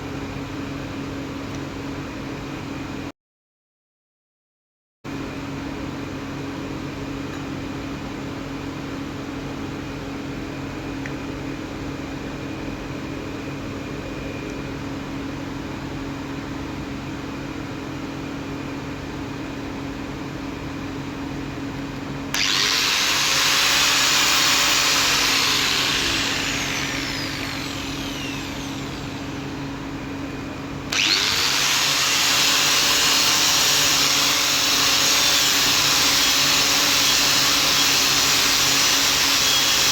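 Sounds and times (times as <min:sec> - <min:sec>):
angle grinder motor whine: 0:22.3 - 0:39.9.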